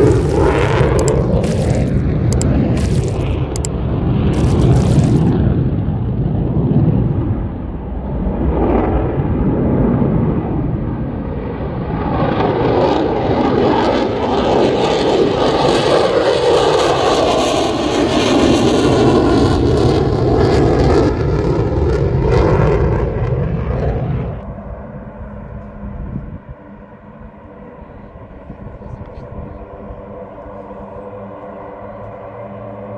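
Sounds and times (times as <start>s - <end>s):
fighter jet engine roaring: 0.0s - 25.5s.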